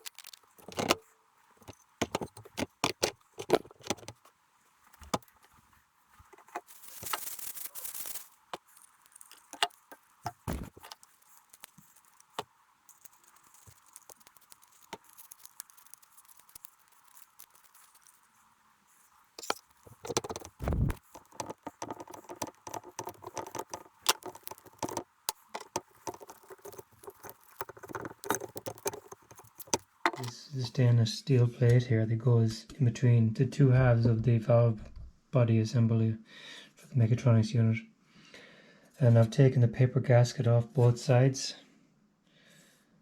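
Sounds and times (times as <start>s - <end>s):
small metal parts clicking: 0.0s - 1.0s, 1.6s - 4.3s, 6.4s - 18.2s, 19.4s - 30.8s
scratchy scraping: 0.0s - 4.3s, 6.2s - 30.8s
metal parts clattering: 19.4s - 30.8s.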